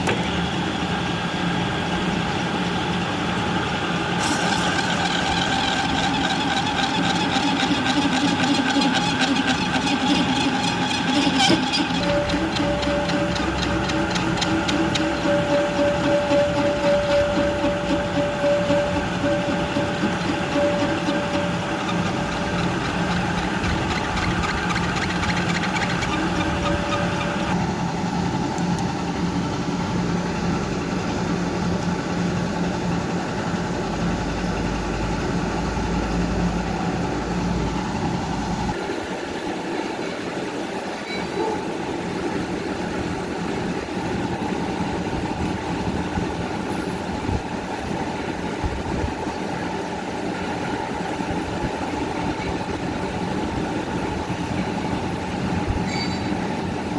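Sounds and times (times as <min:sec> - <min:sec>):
diesel engine clattering: 0:00.0 - 0:38.8, 0:41.0 - 0:56.9
engine whine: 0:00.0 - 0:39.6.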